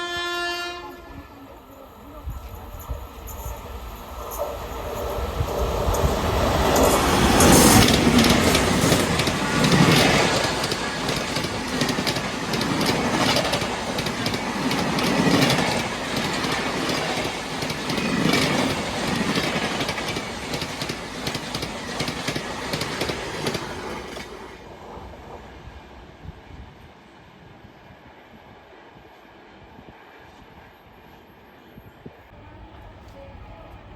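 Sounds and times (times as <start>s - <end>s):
train wheels clattering over rails: 4.4s - 24.5s.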